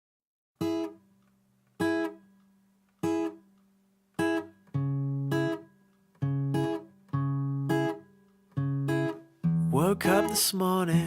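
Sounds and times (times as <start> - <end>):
acoustic guitar strumming chords: 0.6 - 1.1, 1.8 - 2.3, 3.0 - 3.4, 4.2 - 11.0.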